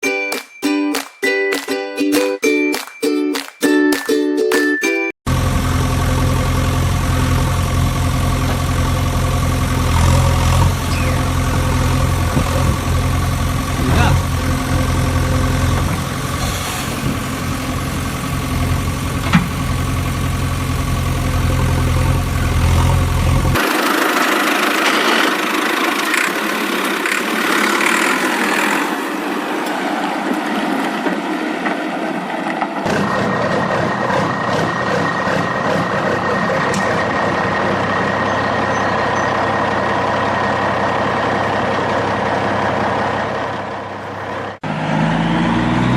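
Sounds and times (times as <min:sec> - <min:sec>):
vehicle engine humming: 0:05.3 - 0:45.9
steady high tone: 0:10.8 - 0:11.4, 0:32.9 - 0:44.2.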